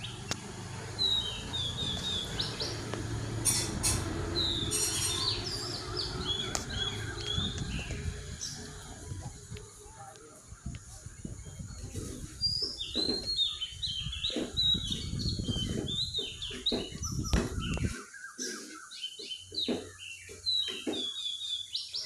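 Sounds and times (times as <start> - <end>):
birds chirping: 0.0 - 22.0
low rumble: 1.0 - 9.8.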